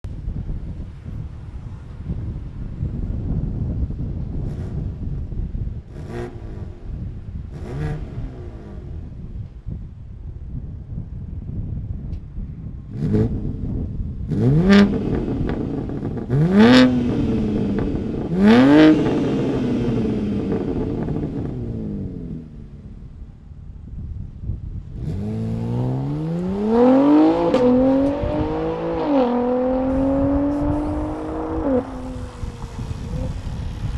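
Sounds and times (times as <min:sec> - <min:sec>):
car engine revving: 0:04.2 - 0:09.7, 0:12.8 - 0:23.8, 0:24.8 - 0:33.9.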